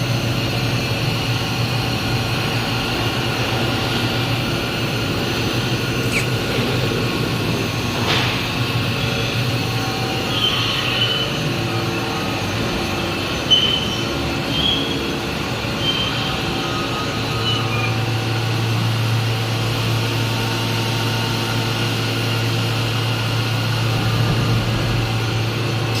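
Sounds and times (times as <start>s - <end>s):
steady low hum: 0.0s - 13.5s
short high squeals: 6.0s - 6.7s.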